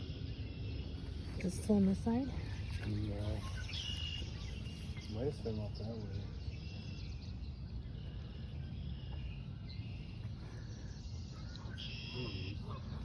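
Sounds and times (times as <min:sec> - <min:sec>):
faint bird chirps: 0:00.0 - 0:13.0
loud bird call: 0:11.3 - 0:13.0.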